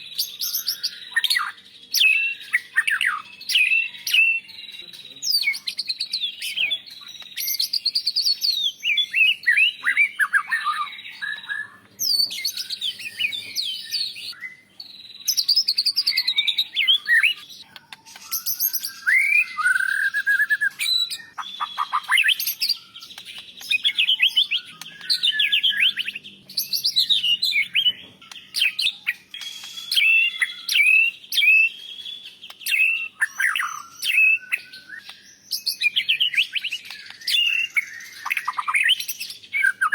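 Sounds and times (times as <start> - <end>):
bird singing whistled phrases: 0.0 - 39.9.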